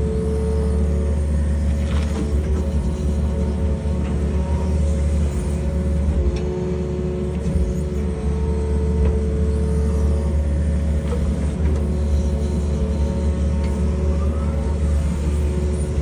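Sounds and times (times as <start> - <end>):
diesel engine droning under load: 0.0 - 16.0.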